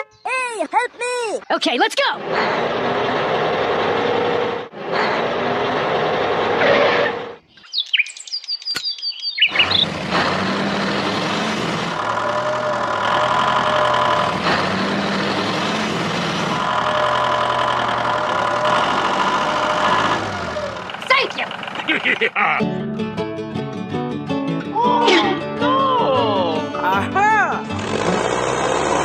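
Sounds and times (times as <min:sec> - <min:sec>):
high gliding bird-like chirps: 0:07.4 - 0:09.9.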